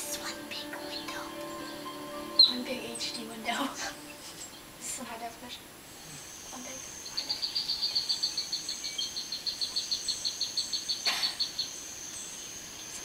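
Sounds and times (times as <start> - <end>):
high-pitched hum: 0.0 - 4.9.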